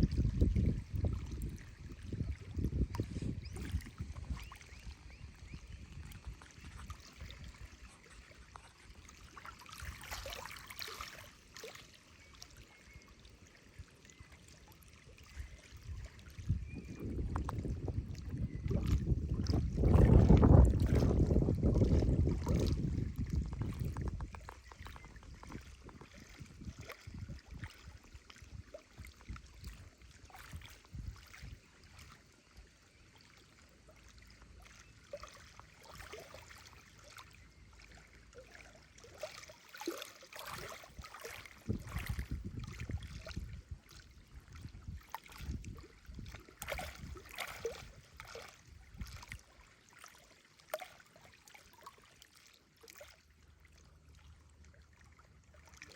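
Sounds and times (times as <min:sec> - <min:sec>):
wind rumble on microphone: 0:00.0 - 0:08.7, 0:15.3 - 0:32.0, 0:40.5 - 0:49.4
waves lapping and splashing: 0:00.0 - 0:55.9.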